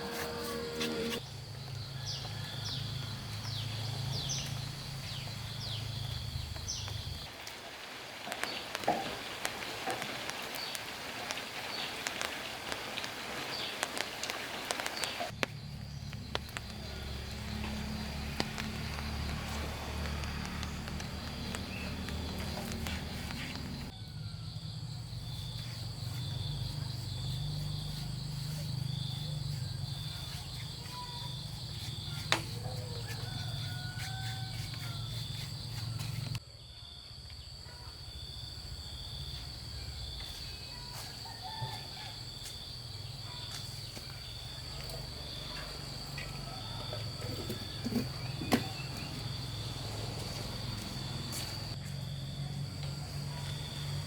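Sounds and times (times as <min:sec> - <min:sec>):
insects buzzing: 0:00.0 - 0:07.4, 0:08.5 - 0:36.4, 0:38.1 - 0:54.0
pulsing insect chirp: 0:15.4 - 0:36.4, 0:38.0 - 0:54.0.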